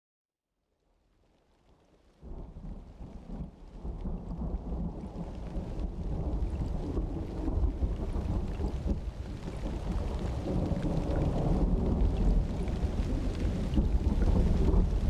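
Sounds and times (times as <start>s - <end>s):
steady rain: 0.9s - 15.0s
rolling thunder: 4.2s - 15.0s.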